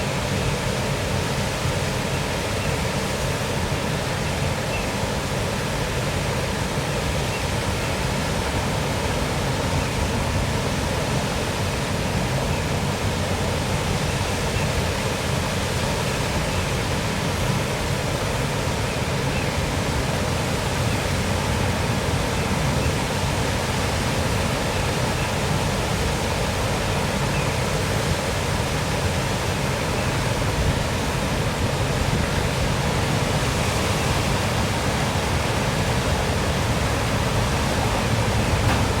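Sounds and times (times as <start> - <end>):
small waterfall splashing: 0.0 - 39.0.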